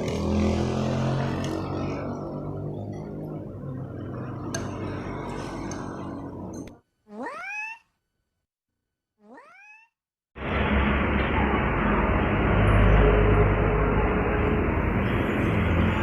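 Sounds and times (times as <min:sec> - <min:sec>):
cat meowing: 0:07.1 - 0:07.9, 0:09.2 - 0:10.0.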